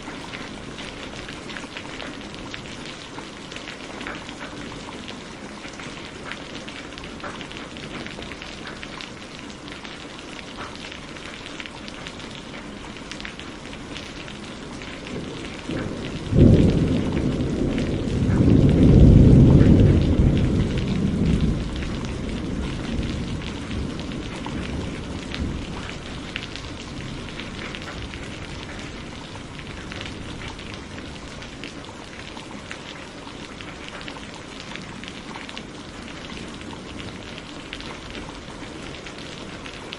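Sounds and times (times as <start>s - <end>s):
steady rain falling: 0.0s - 39.9s
thunderclap rumbling: 12.3s - 39.9s.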